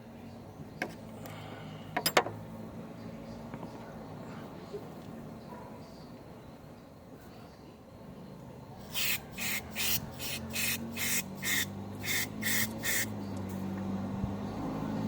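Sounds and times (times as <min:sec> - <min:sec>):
aerosol spray hissing bursts: 0:08.8 - 0:13.2.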